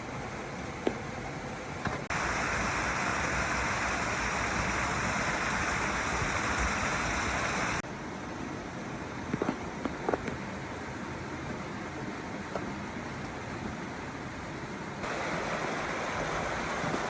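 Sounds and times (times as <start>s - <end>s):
stream water rushing over rocks: 2.1s - 7.8s, 15.0s - 17.0s.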